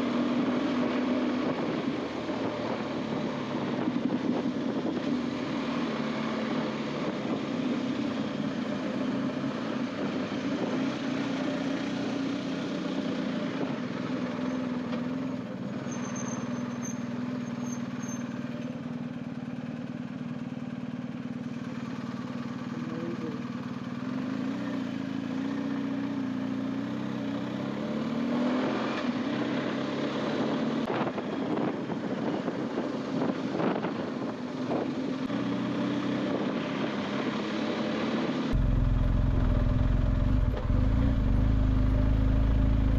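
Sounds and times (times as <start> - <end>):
wind and road noise: 0.0 - 42.9
motorcycle engine running: 16.5 - 27.9, 38.5 - 42.9.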